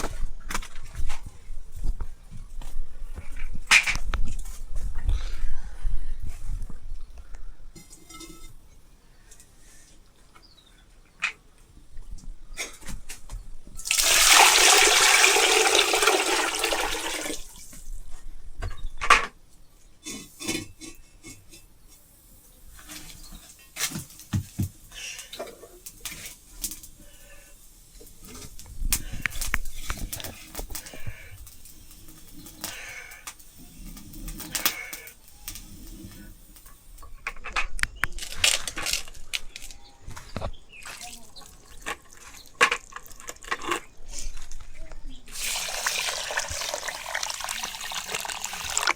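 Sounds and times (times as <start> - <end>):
clattering and rustling: 7.8 - 8.8, 20.0 - 21.7.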